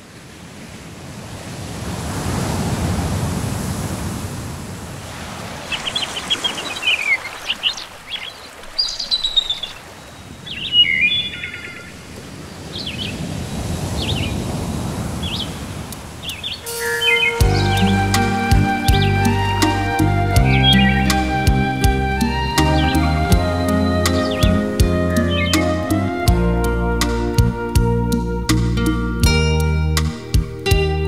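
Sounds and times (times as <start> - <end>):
sea waves washing in: 0.0 - 27.8
small birds chirping: 5.7 - 13.2, 15.2 - 25.9.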